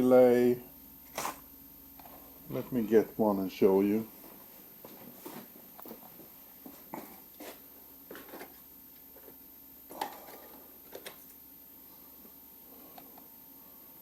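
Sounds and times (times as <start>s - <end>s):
small parts and packaging rustling: 6.9s - 8.6s, 9.2s - 11.4s.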